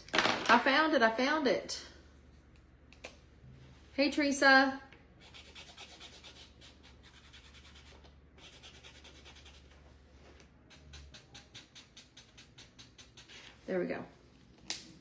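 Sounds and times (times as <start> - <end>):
scratchy rubbing on hard surface: 10.7 - 13.6.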